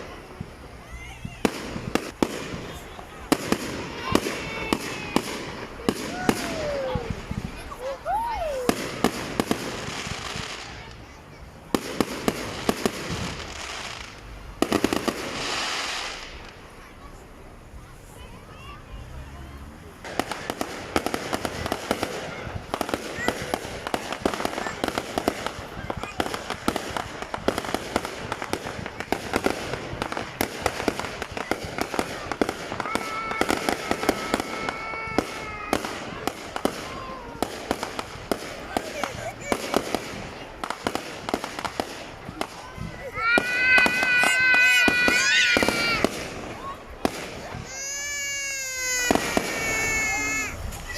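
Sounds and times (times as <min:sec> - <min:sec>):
firework hiss: 0:00.0 - 0:50.9
fireworks banging: 0:00.0 - 0:50.9
rapid volley of firework cracks: 0:00.0 - 0:50.9.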